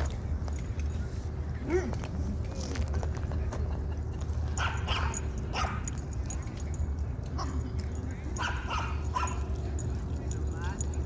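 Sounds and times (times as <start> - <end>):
dog barking: 4.6 - 5.8, 8.4 - 9.5.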